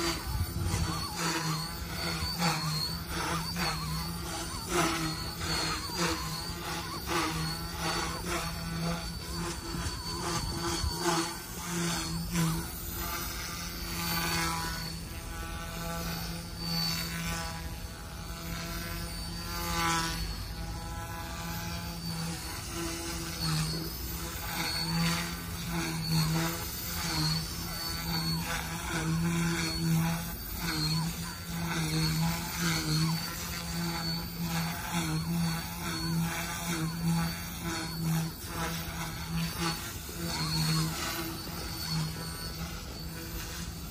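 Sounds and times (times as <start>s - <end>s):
high motor whine: 0.0s - 43.9s
rc helicopter rotor buzz: 0.0s - 43.9s.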